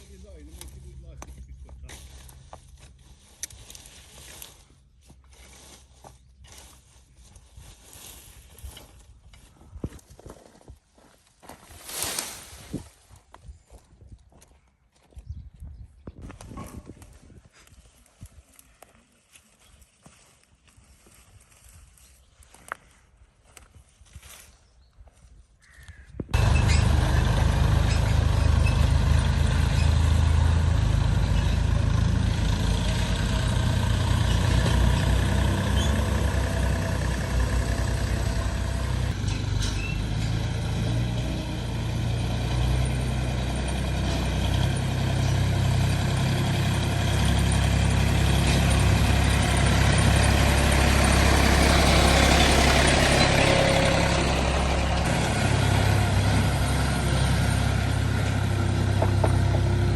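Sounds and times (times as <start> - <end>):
tractor engine chugging: 26.4 - 59.9.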